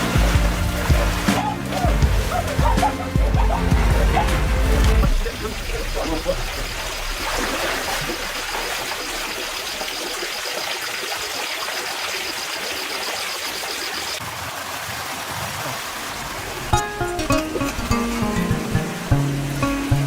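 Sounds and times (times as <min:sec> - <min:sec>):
rushing water: 0:00.0 - 0:20.0.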